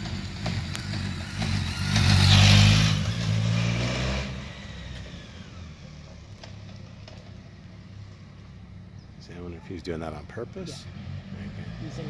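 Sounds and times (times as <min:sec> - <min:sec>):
motorcycle passing by: 0:00.0 - 0:07.0, 0:10.2 - 0:12.0.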